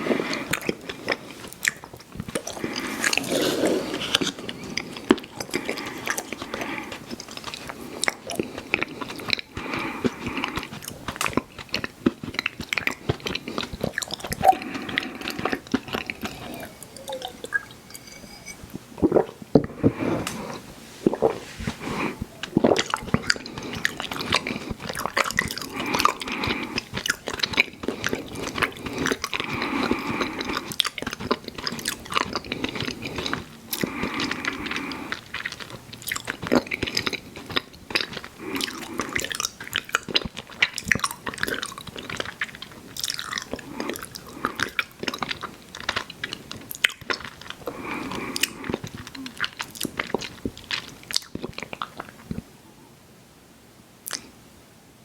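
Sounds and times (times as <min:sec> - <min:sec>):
chewing chewy candy: 0:00.2 - 0:03.4, 0:04.0 - 0:17.7, 0:22.3 - 0:52.5.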